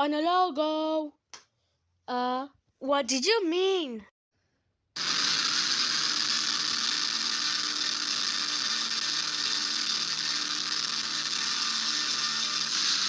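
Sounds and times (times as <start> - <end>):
mechanical whirring: 5.0 - 13.0.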